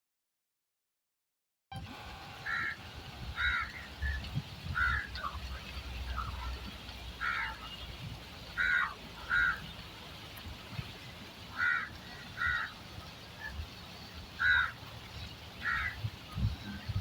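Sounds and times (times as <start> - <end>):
bird calling: 2.4 - 5.4, 8.6 - 9.8, 11.5 - 14.8, 15.6 - 16.0.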